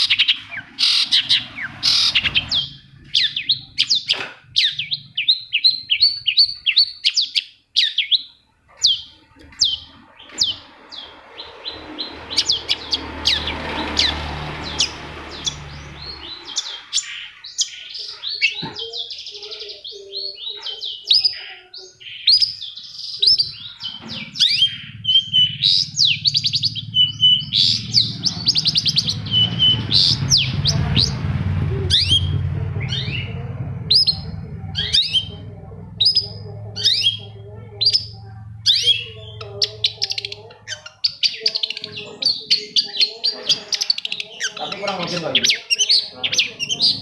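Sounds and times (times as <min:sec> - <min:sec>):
shrike singing: 0:00.0 - 0:47.0
low steady hum: 0:23.4 - 0:40.9.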